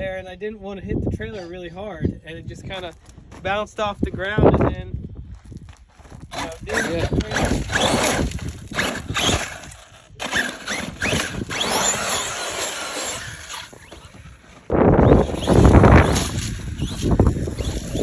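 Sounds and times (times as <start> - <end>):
electric motor whining: 6.3 - 18.0.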